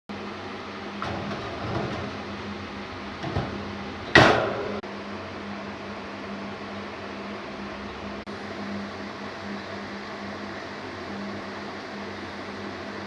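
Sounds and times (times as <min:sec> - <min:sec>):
steady low hum: 0:00.1 - 0:13.0.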